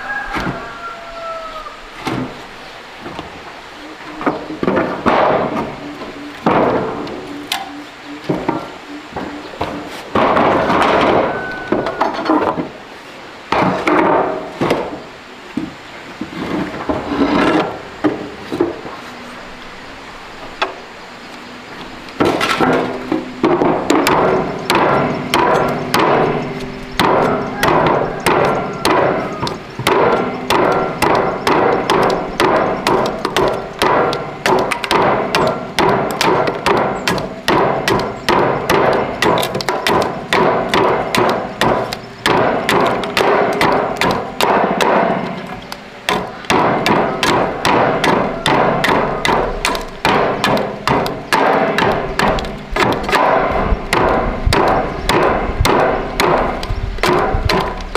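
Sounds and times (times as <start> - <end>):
hammer striking: 22.2 - 57.9.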